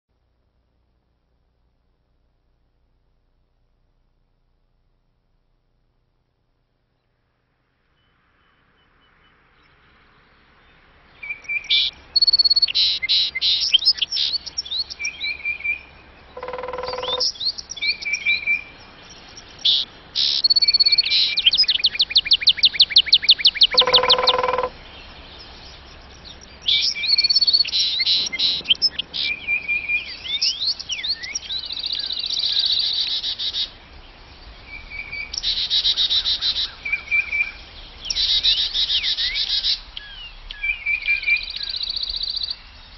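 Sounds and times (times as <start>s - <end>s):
songbirds chirping and trilling: 6.8s - 42.9s
deeper bird call: 16.3s - 18.7s, 19.5s - 25.2s.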